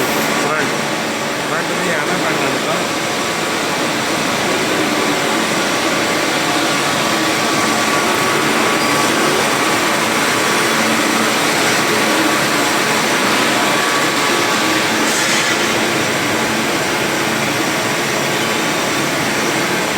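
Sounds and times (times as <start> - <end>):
loud mechanical whir: 0.0 - 19.9.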